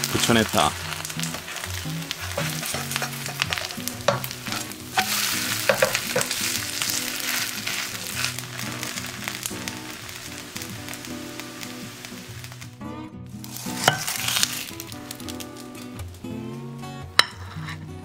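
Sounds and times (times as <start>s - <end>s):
batter sizzling in hot oil: 0.0s - 12.8s, 13.4s - 16.5s
spatula scraping a pan: 0.5s - 9.4s, 13.5s - 14.8s, 17.2s - 18.0s.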